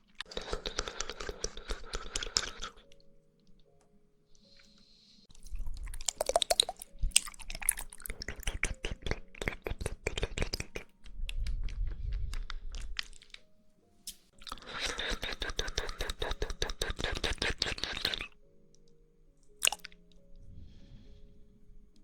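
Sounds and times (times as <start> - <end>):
wet chewing and squishing: 0.0 - 3.0, 5.3 - 13.5, 14.4 - 18.4, 19.5 - 20.2.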